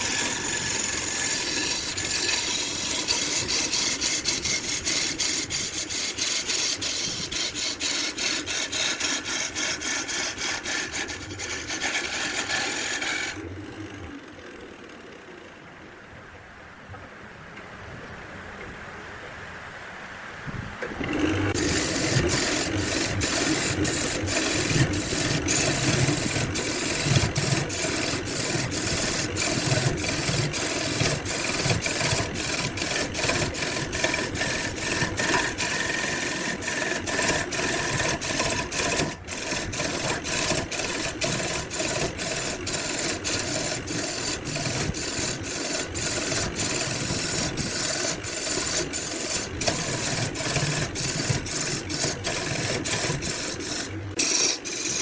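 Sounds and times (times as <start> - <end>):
woodworking machine rasping: 0.0 - 13.5, 20.8 - 55.0.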